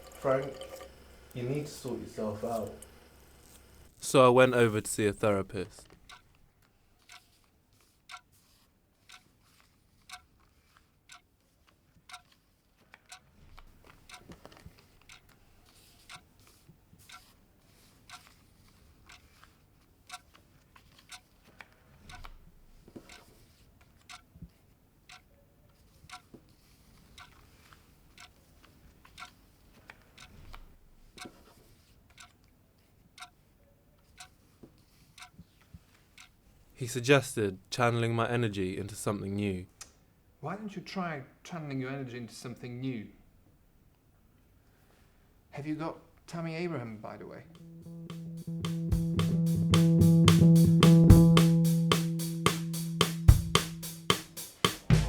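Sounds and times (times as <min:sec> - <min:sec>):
clock ticking: 0:00.0 - 0:06.3, 0:14.0 - 0:14.4, 0:15.0 - 0:15.4, 0:16.0 - 0:16.3, 0:19.1 - 0:19.3, 0:23.0 - 0:23.3, 0:47.5 - 0:55.0.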